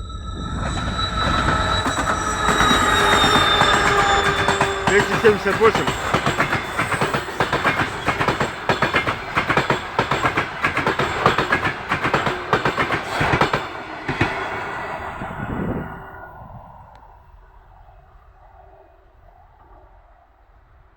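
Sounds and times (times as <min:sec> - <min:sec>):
train wheels clacking over rail joints: 0:01.3 - 0:14.4.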